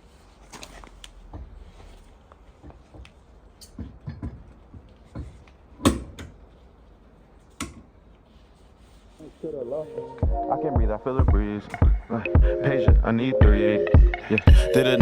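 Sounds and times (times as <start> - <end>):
knocks and metallic clicks: 2.6 - 6.4.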